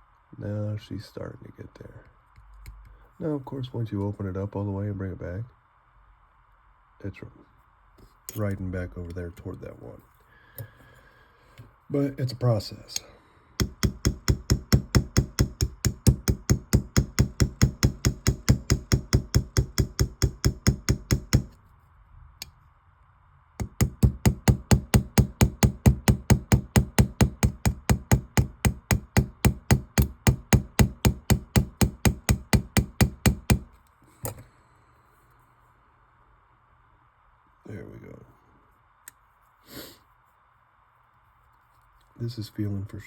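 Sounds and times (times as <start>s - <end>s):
small hammer tapping metal: 13.6s - 21.6s, 23.6s - 33.7s.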